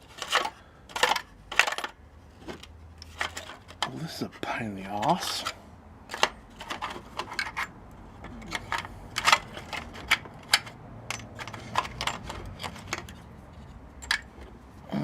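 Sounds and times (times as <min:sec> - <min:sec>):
metal washers clinking: 0:00.1 - 0:02.0, 0:05.2 - 0:14.7.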